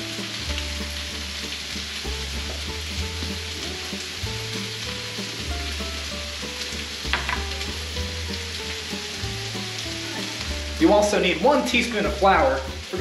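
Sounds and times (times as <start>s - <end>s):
vegetables sizzling in oil: 0.0s - 13.0s
cup knocking on cutting board: 7.1s - 7.5s.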